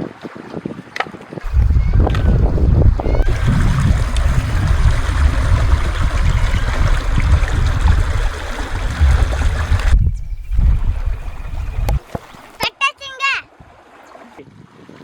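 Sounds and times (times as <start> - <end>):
wind rumbling on microphone: 1.4 - 12.6
chicken frying in hot oil: 1.5 - 9.8.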